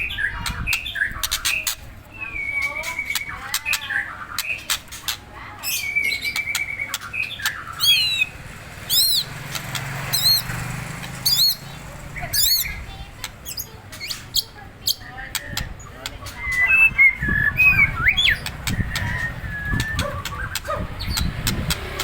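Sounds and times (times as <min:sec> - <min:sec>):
bird clicks and whistled notes: 0:00.5 - 0:05.2, 0:05.8 - 0:08.3, 0:12.4 - 0:22.0
high wavering bird notes: 0:05.6 - 0:15.2.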